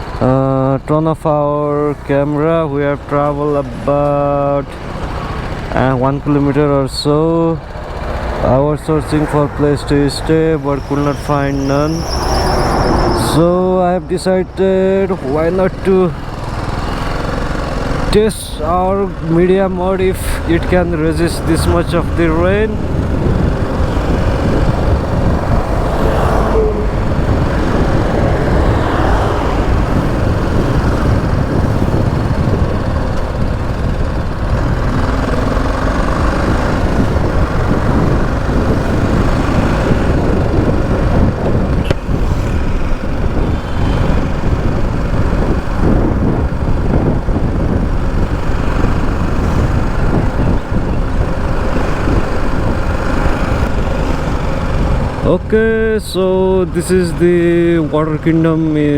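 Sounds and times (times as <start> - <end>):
passing traffic: 0.0 - 58.9
motorcycle engine: 1.3 - 58.9
wind noise: 7.8 - 13.6, 14.6 - 58.3.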